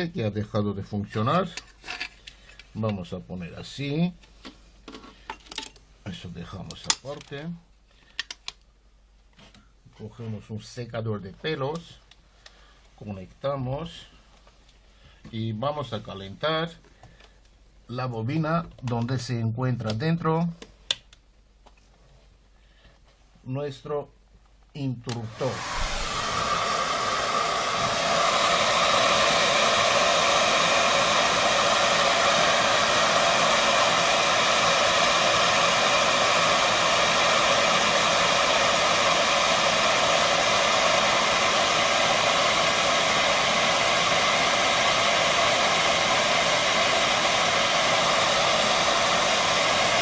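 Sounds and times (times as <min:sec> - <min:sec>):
hair dryer running on high: 0:25.1 - 0:50.0.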